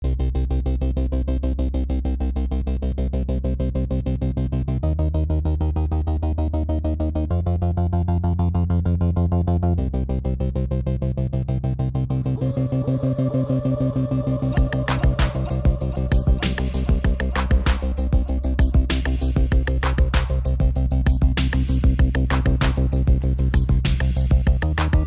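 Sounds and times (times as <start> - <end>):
synthesizer music with pulsing beat: 13.9 - 25.0.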